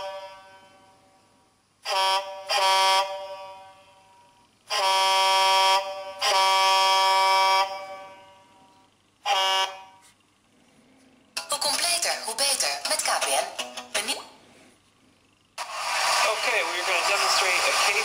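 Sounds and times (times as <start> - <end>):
multi-note air horn blasts: 0.0 - 1.2, 1.8 - 10.2.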